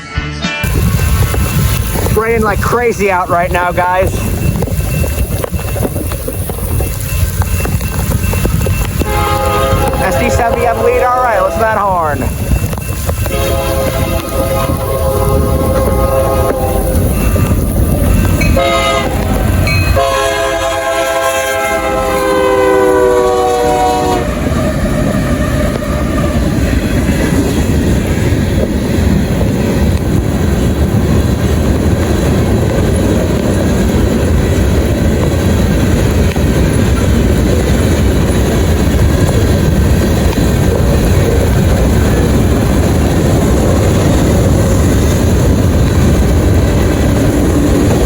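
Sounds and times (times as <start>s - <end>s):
freight cars rumbling and clattering: 0.6s - 21.0s, 24.3s - 48.0s
locomotive horn blasts: 9.0s - 12.2s, 13.3s - 17.0s, 18.4s - 26.4s.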